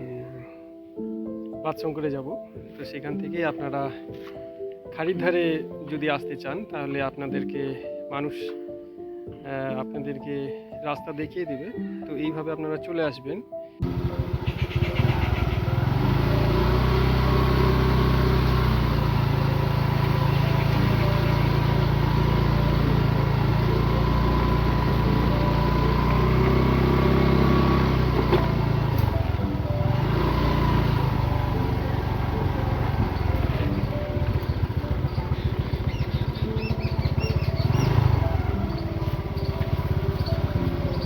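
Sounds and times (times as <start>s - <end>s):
motorcycle engine running: 13.8s - 41.0s.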